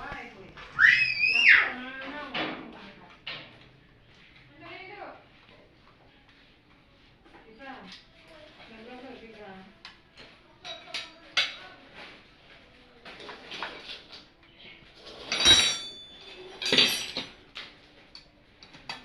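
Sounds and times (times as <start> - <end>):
metal tools clinking: 15.0 - 17.4.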